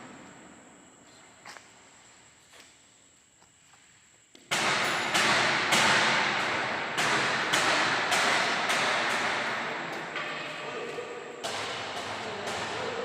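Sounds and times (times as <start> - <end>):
loud even pounding: 4.5 - 10.8, 11.4 - 13.0.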